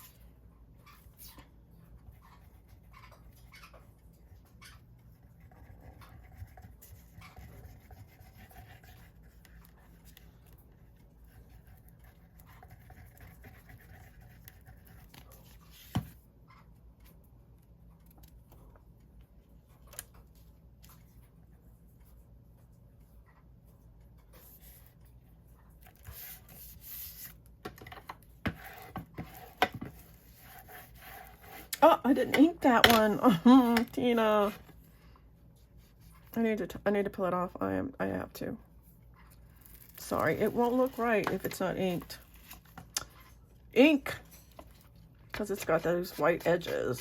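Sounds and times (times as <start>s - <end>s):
paper rustling and scratching: 5.3s - 16.2s, 25.8s - 27.4s, 39.2s - 43.4s.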